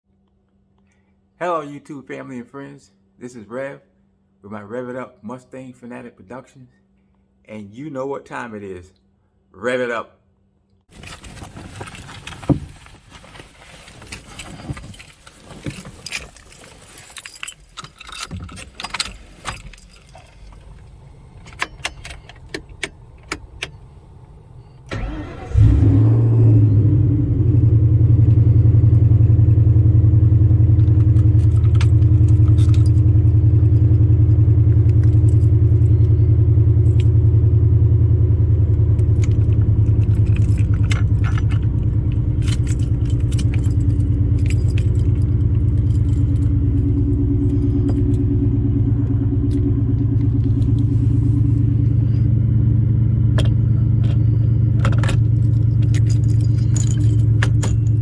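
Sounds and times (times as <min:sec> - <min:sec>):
car engine starting and idling: 0:10.9 - 0:58.0
keys jangling: 0:13.6 - 0:23.8, 0:30.7 - 0:37.4, 0:38.9 - 0:48.3, 0:53.4 - 0:58.0.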